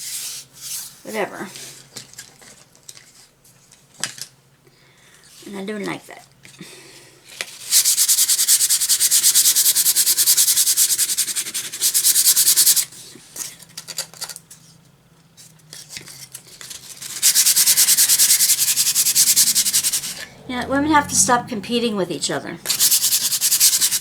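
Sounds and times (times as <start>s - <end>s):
sandpaper rubbing on wood: 7.6s - 12.9s, 16.6s - 20.2s, 22.7s - 24.0s.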